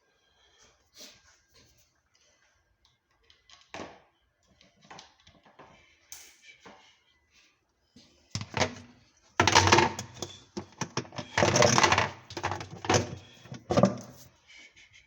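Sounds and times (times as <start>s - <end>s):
hard parts clattering: 8.4s - 14.3s.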